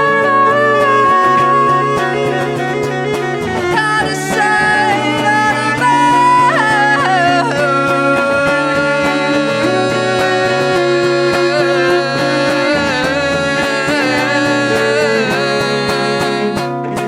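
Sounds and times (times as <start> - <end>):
cello: 0.0 - 17.0
electric guitar: 0.0 - 17.0.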